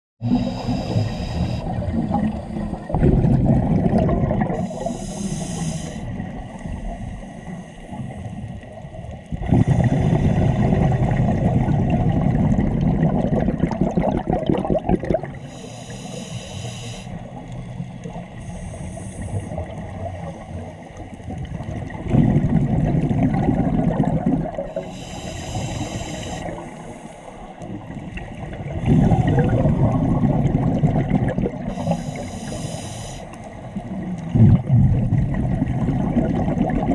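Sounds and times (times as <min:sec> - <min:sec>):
hissing regulator inhalations: 0:00.2 - 0:03.0, 0:04.6 - 0:08.3, 0:15.4 - 0:17.3, 0:18.4 - 0:19.6, 0:24.7 - 0:27.6, 0:31.7 - 0:33.6
bubbling exhalations: 0:00.2 - 0:06.1, 0:09.4 - 0:15.5, 0:28.6 - 0:32.9.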